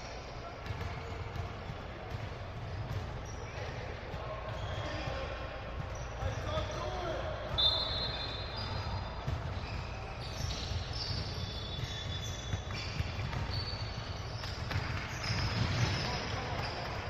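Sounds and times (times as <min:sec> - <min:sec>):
sneakers squeaking: 0:00.0 - 0:17.0
basketball bouncing: 0:00.6 - 0:05.1, 0:08.6 - 0:17.0.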